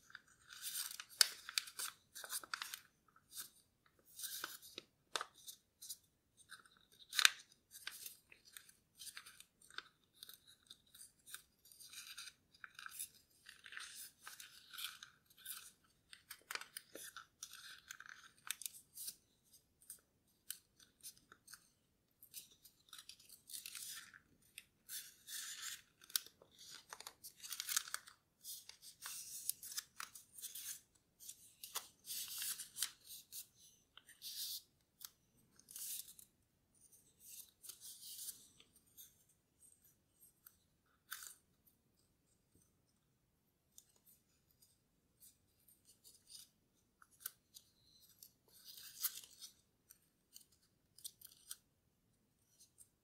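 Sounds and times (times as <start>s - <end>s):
paper rustling and crinkling: 0.0s - 36.3s.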